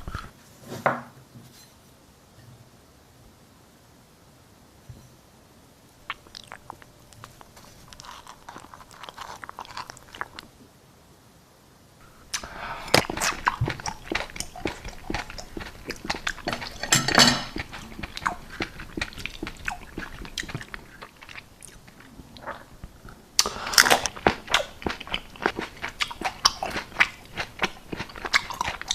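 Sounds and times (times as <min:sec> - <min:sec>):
biting and chewing: 0:06.0 - 0:10.5, 0:12.2 - 0:28.9
wet mouth clicks: 0:06.0 - 0:10.5, 0:12.3 - 0:28.9.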